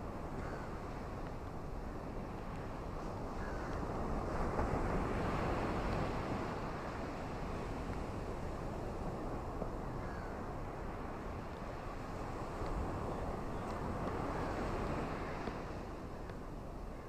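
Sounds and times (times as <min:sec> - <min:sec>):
ocean surf washing on shore: 0:00.0 - 0:16.9.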